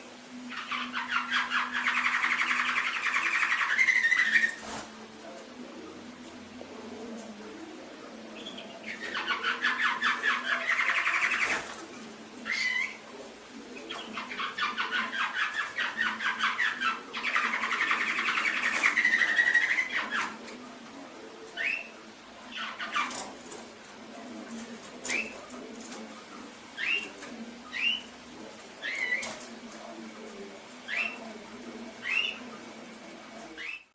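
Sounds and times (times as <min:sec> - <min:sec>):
canary singing trills: 0:00.0 - 0:04.8, 0:08.1 - 0:20.4, 0:21.5 - 0:23.2, 0:25.0 - 0:25.5, 0:26.7 - 0:28.2, 0:28.8 - 0:29.4, 0:30.8 - 0:31.3, 0:31.9 - 0:32.6, 0:33.6 - 0:33.9.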